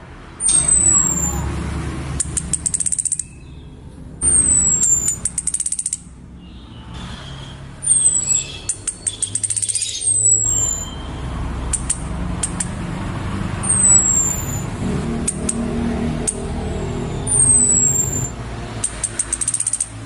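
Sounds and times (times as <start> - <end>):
ticking clicks: 2.1 - 3.4, 4.2 - 6.2, 7.9 - 9.9, 11.6 - 13.0, 13.7 - 16.5, 17.3 - 20.0.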